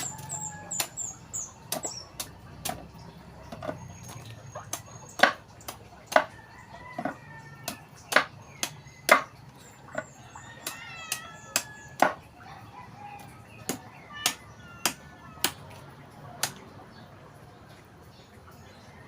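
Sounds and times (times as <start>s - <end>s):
birds chirping: 0.0s - 19.0s
blade chopping coconut: 1.7s - 2.9s, 4.6s - 6.4s, 7.0s - 9.3s.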